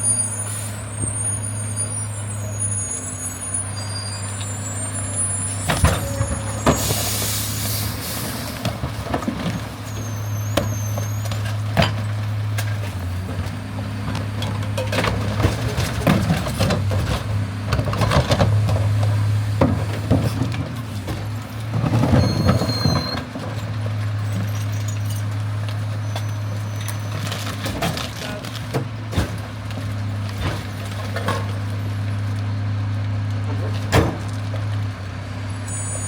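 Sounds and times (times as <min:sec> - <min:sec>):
high squeal: 0:00.0 - 0:08.4, 0:09.8 - 0:11.5, 0:35.4 - 0:36.0.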